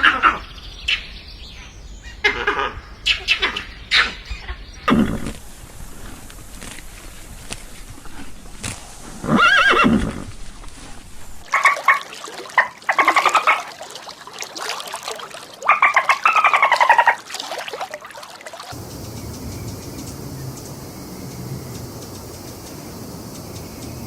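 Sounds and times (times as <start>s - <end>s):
animal calls: 0.0s - 1.0s, 2.1s - 5.3s.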